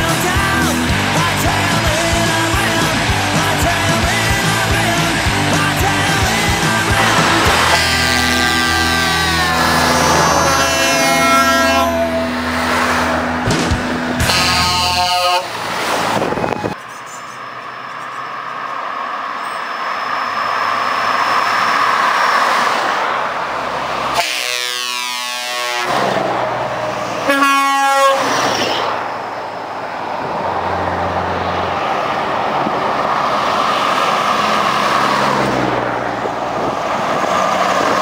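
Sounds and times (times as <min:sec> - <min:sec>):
trucks passing: 0:00.0 - 0:38.0
truck air horn blasts: 0:07.0 - 0:17.4, 0:24.1 - 0:26.3, 0:27.0 - 0:28.4.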